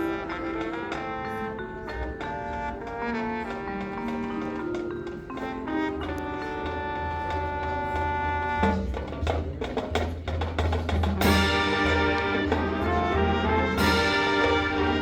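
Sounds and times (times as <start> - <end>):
brass chords: 0.0 - 9.2, 11.1 - 15.0
marching band playing: 0.0 - 15.0
sharp percussion hits: 10.2 - 15.0.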